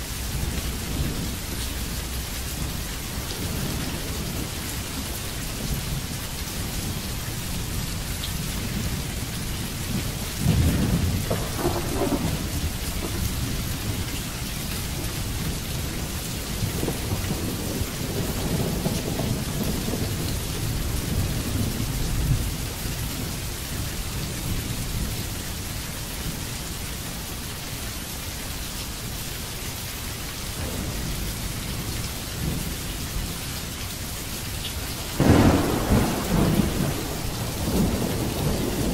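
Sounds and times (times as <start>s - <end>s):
steady rain falling: 0.0s - 38.9s
rolling thunder: 8.6s - 23.4s, 30.6s - 33.4s, 35.2s - 38.9s.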